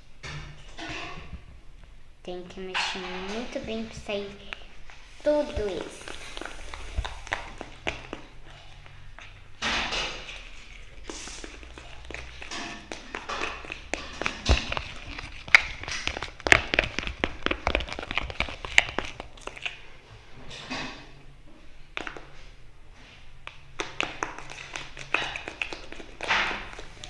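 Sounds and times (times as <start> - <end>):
utensil scraping pot: 2.7 - 21.2, 24.1 - 27.0
utensil tapping pot sides: 9.6 - 19.7.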